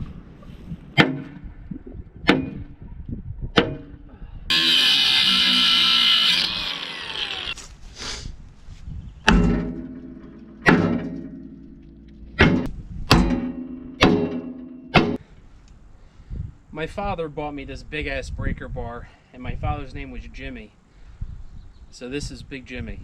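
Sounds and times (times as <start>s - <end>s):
machine whirring winding down: 4.5s - 7.6s
hammer striking metal punch: 9.3s - 11.7s, 12.4s - 15.2s.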